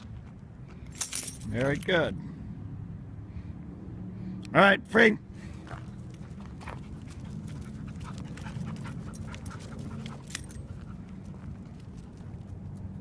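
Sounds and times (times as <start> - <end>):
dog panting: 5.7 - 11.5.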